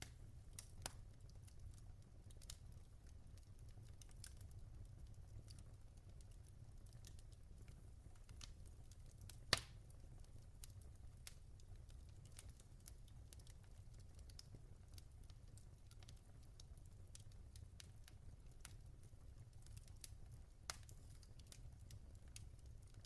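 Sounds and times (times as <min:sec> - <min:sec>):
logs crackling in a fireplace: 0:00.0 - 0:23.0
low rumble of fire: 0:00.0 - 0:23.0
sharp pop from fire: 0:09.5 - 0:09.8.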